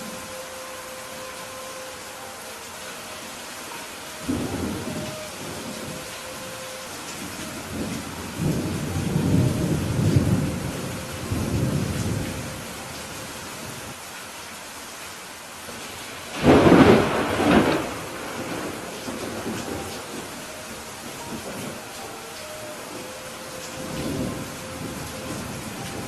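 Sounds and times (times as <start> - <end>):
steady rain: 0.0 - 26.0
rolling thunder rumble: 3.7 - 12.9, 16.3 - 26.0
sharp thunderclap: 16.4 - 19.8.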